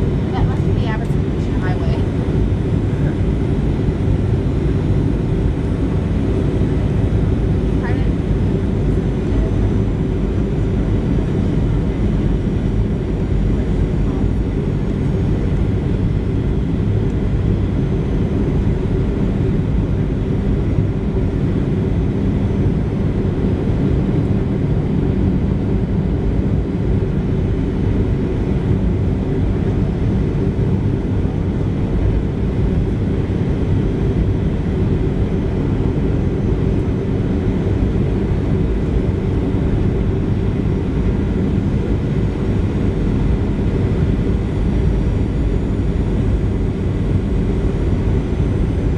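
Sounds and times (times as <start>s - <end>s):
airplane cabin engine rumble: 0.0s - 48.9s.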